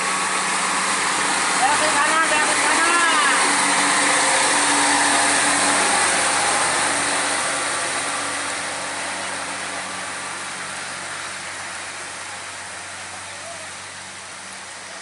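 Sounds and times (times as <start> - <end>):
road noise: 0.0 - 15.0
truck engine running: 0.0 - 15.0.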